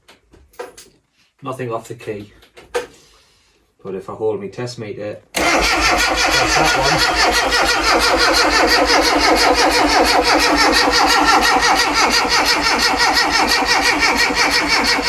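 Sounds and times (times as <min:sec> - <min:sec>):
car engine cranking: 0:05.4 - 0:15.0.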